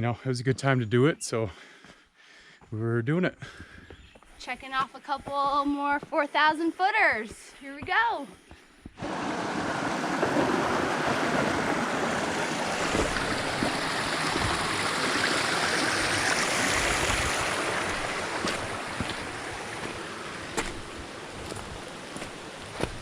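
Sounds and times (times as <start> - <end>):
stream water rushing: 9.0 - 23.0.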